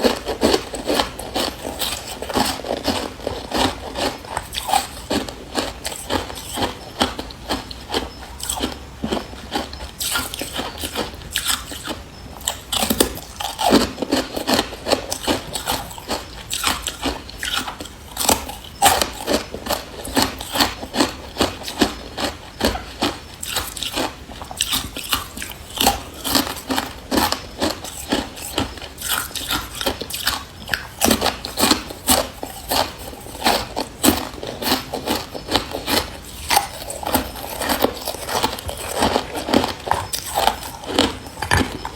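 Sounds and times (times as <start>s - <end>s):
ice being bitten and chewed: 0.0s - 41.9s.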